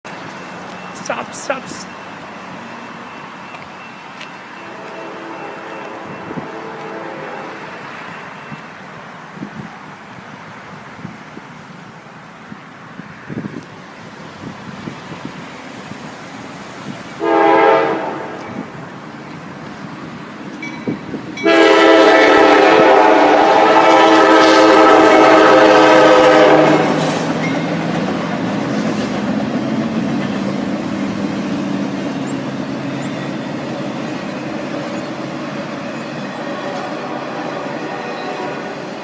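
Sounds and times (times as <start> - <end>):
train rumbling past: 0.1 - 39.0
locomotive horn blast: 4.6 - 7.9, 17.2 - 18.7, 21.4 - 27.3, 36.4 - 39.0.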